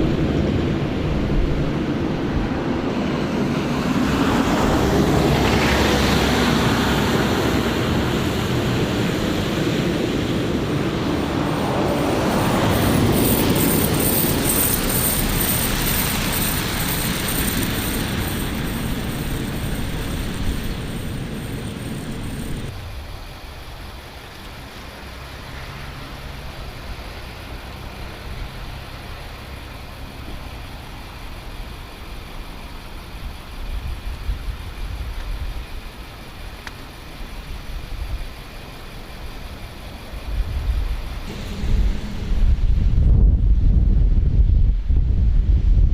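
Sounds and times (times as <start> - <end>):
heavy machinery rumbling: 0.0 - 23.0, 41.2 - 45.0.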